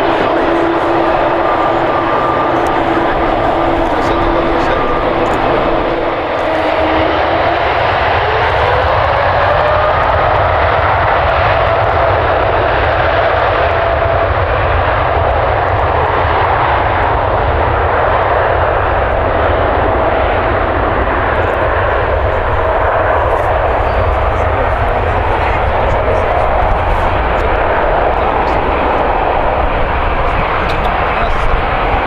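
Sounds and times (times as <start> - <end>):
jet engines whining: 0.0 - 10.4, 17.0 - 32.0.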